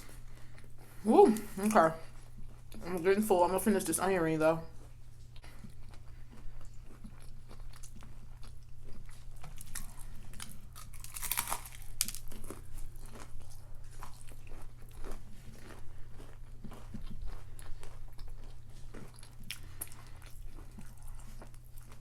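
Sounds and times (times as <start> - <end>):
steady low hum: 0.0 - 22.0
crunchy onion ring chewing: 4.7 - 22.0.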